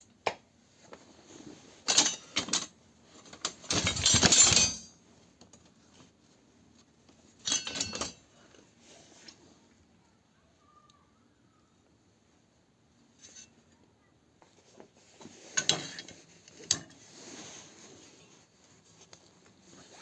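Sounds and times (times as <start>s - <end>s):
metal objects clattering: 1.8s - 5.0s, 7.4s - 8.3s, 15.5s - 17.0s.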